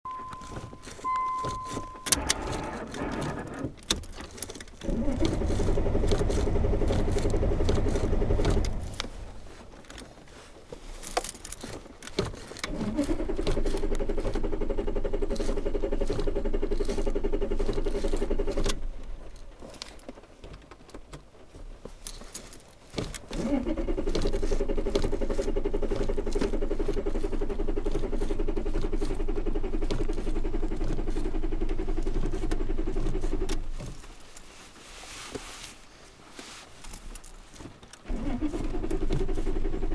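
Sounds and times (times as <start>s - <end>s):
electronic tone: 0.1s - 2.2s
jangling clicks: 0.1s - 10.2s, 10.9s - 21.1s, 21.9s - 34.4s, 36.8s - 39.9s
car engine revving: 4.8s - 9.4s.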